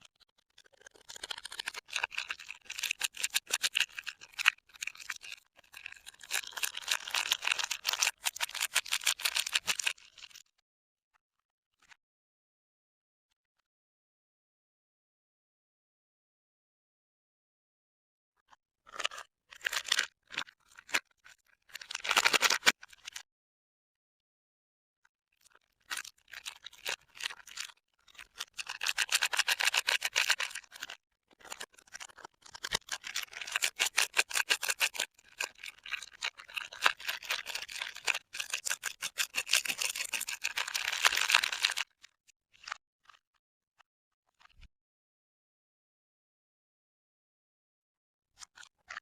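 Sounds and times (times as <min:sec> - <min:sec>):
wrapper crinkling and tearing: 0:21.8 - 0:22.8, 0:36.5 - 0:41.8.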